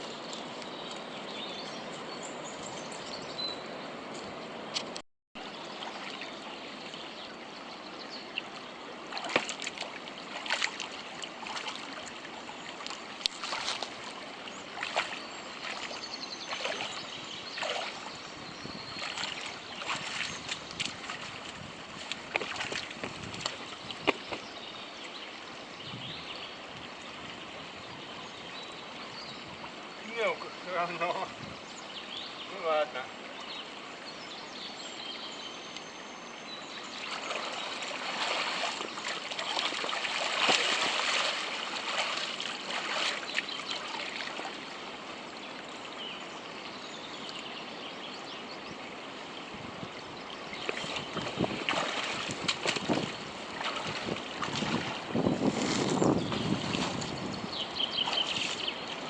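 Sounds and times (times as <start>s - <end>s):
creek water running: 0.0s - 59.0s
splashes of person in water: 9.1s - 12.0s, 13.3s - 13.9s, 14.8s - 17.0s, 17.6s - 18.1s, 19.0s - 21.3s, 37.1s - 44.6s, 50.6s - 56.0s, 58.0s - 58.7s.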